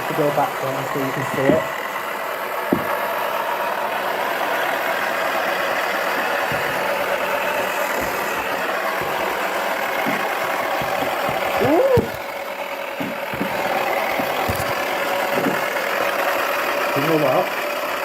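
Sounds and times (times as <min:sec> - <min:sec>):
balls knocking inside drum: 0:02.7 - 0:03.0, 0:06.1 - 0:12.4, 0:13.0 - 0:15.8.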